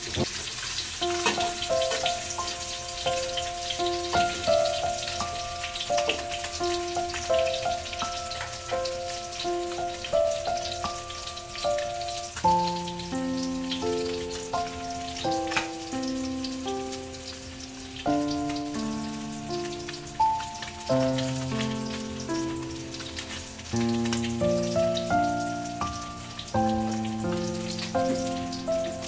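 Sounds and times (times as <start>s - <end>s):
fish sizzling in oil: 0.0s - 29.0s
background music of struck notes: 1.0s - 16.9s.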